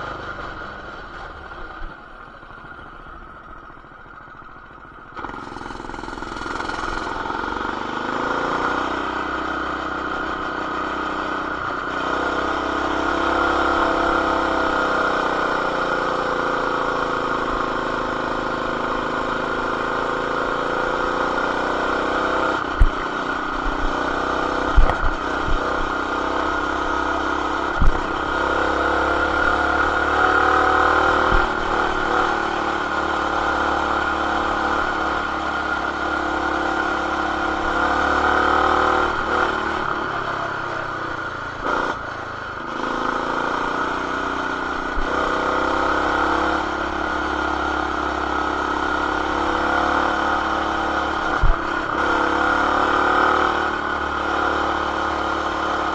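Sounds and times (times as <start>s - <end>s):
mini bike engine at high revs: 0.0s - 55.9s.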